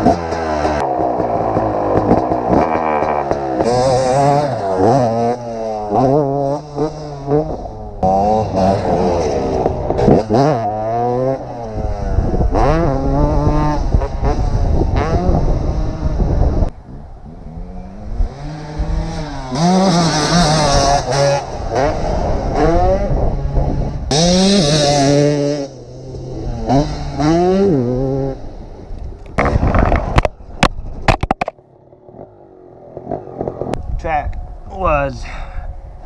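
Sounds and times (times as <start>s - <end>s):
two-stroke dirt bike engine revving: 0.0s - 16.7s, 17.4s - 28.6s.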